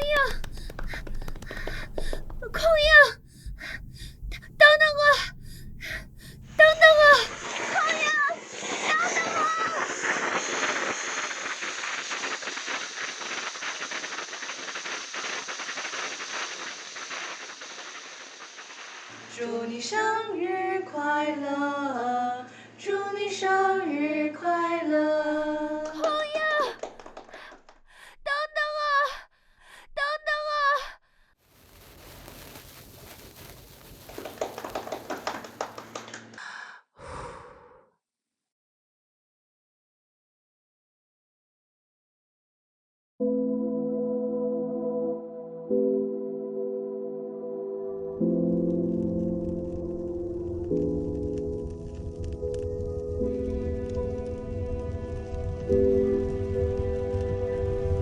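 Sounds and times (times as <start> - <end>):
sharp taps or clicks: 0.0 - 2.6
low steady hum: 0.0 - 7.5
hissing rushing noise: 0.0 - 19.5, 31.6 - 36.0
short bursts of noise: 0.0 - 19.5, 31.5 - 36.3
fine crackle: 0.0 - 19.8, 31.4 - 36.3, 48.2 - 58.0.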